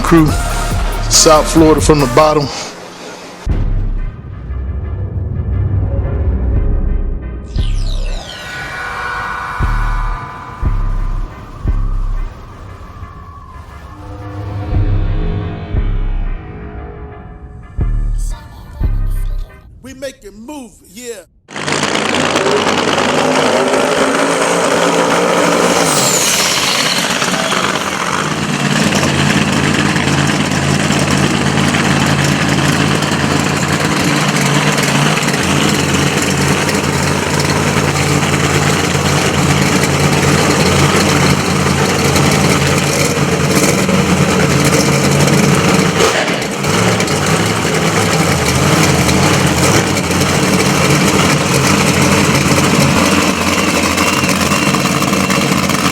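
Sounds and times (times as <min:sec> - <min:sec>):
high falling whistle: 0:07.4 - 0:18.1, 0:23.8 - 0:29.3, 0:51.9 - 0:55.9
race car engine idling: 0:27.1 - 0:55.9.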